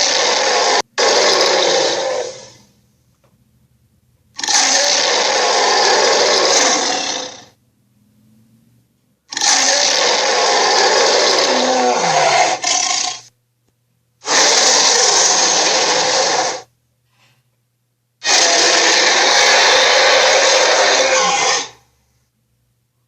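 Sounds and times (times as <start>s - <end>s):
dinosaur roaring: 0.0s - 2.6s, 4.4s - 7.5s, 9.3s - 13.3s, 14.2s - 16.7s, 18.2s - 21.8s.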